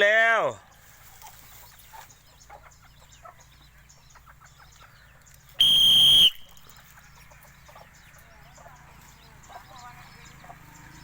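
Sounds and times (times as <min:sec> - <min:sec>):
whistle blast: 0:05.6 - 0:06.6.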